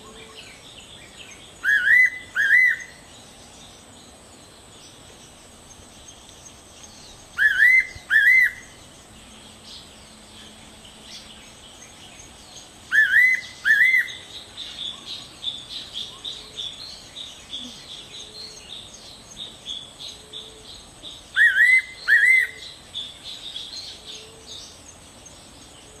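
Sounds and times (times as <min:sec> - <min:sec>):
high bird chirping: 0:04.8 - 0:09.0.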